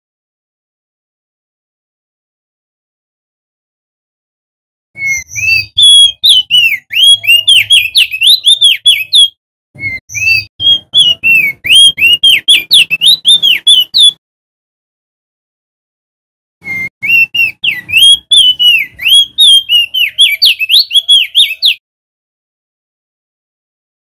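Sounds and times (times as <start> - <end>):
bird singing whistled notes: 5.0 - 14.2, 16.6 - 21.8.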